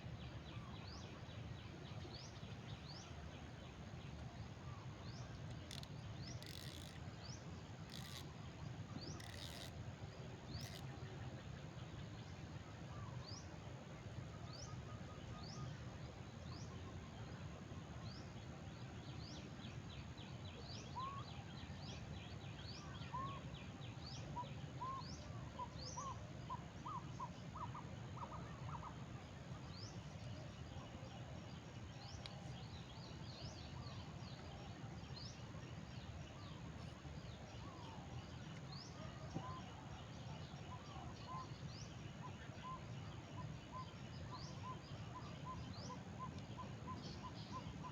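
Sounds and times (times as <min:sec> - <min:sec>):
steady low background hum: 0:00.0 - 0:47.9.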